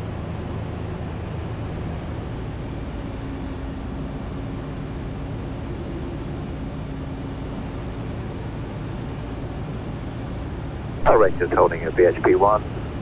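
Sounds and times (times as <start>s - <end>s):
aircraft engine drone in cockpit: 0.0s - 13.0s
faint steady tone: 11.0s - 13.0s.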